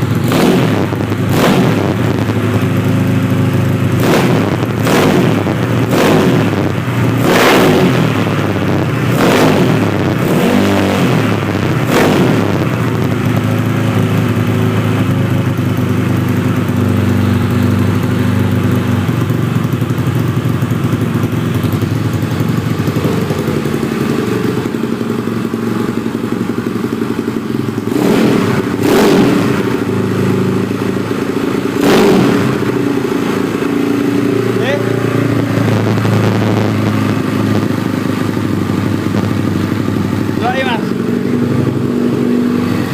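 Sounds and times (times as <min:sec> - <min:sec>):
scooter engine revving and idling: 0:00.0 - 0:42.9.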